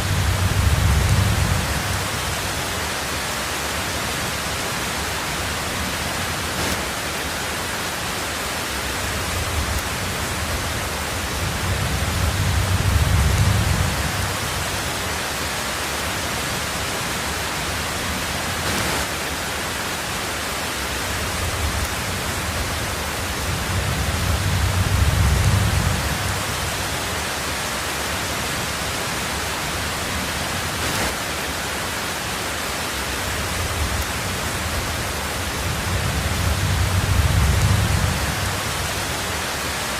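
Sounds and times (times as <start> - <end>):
rolling thunder: 0.0 - 2.6, 9.0 - 14.9, 21.2 - 26.9, 33.4 - 39.2
heavy rain on a tin roof: 0.0 - 39.9.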